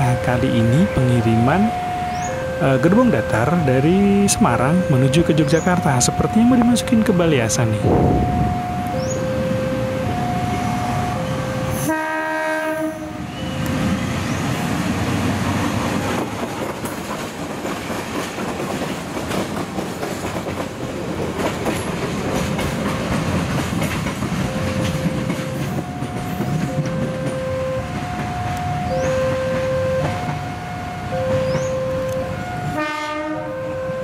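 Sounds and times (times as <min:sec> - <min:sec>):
locomotive engine running: 0:00.0 - 0:12.0, 0:13.2 - 0:32.8
diesel locomotive horn: 0:07.8 - 0:13.7, 0:24.5 - 0:34.0
wheels clattering over rail joints: 0:15.2 - 0:30.5.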